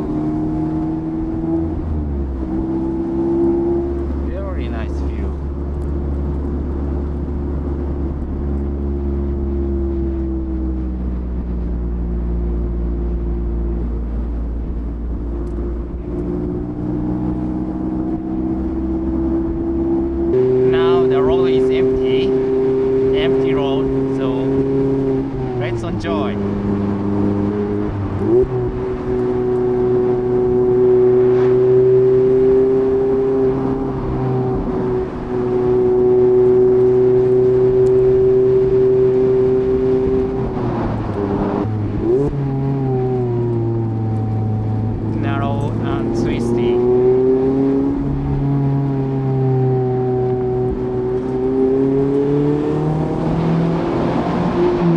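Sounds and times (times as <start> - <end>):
car engine cruising: 0.0 - 54.9.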